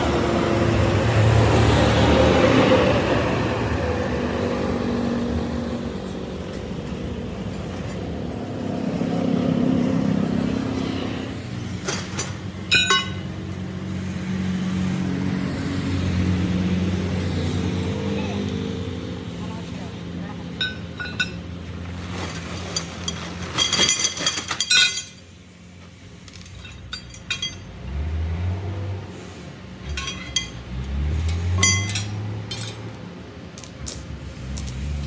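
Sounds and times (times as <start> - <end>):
sharp metallic clinks: 12.1 - 13.4, 26.4 - 27.8, 29.8 - 32.9.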